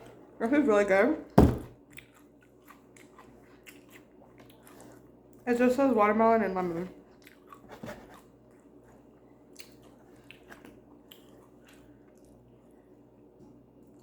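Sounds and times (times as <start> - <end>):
chewing and mouth sounds: 1.8 - 5.4, 7.0 - 12.8.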